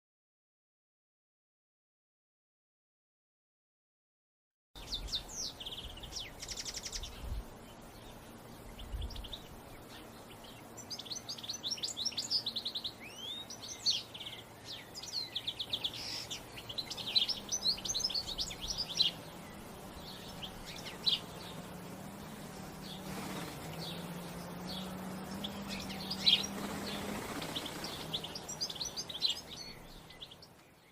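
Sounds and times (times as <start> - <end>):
faint low hum: 4.8 - 30.9
wild birds chirping and singing: 4.8 - 30.9.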